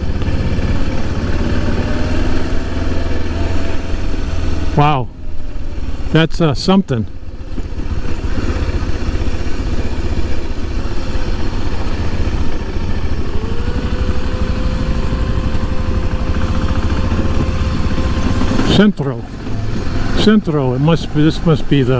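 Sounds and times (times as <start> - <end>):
motorcycle engine running: 0.0 - 21.9.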